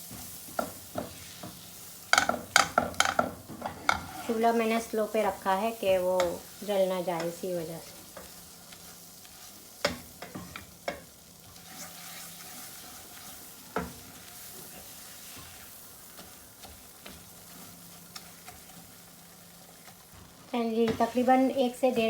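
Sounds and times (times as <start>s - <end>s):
faint sizzle: 0.0s - 22.0s
spoon scraping and knocking pan: 0.1s - 4.6s, 6.2s - 6.5s, 7.2s - 18.9s.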